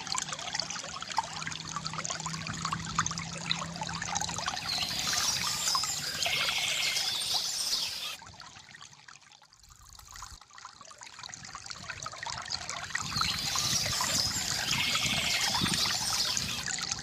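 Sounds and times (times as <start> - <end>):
stream trickling and splashing: 0.0 - 17.0
birds singing: 4.5 - 8.2, 13.0 - 16.7.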